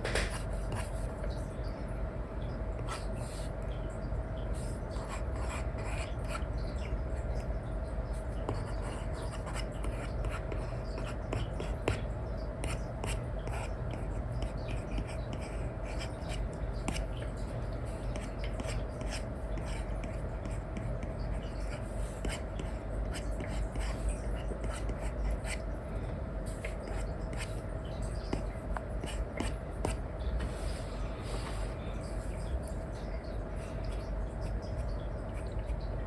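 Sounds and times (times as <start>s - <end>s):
steady hiss and hum: 0.0s - 36.0s.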